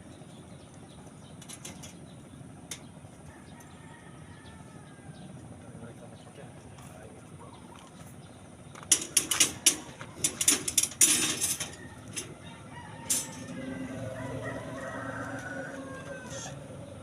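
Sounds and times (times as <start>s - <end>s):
rooster crowing: 3.2s - 5.3s, 11.4s - 17.0s.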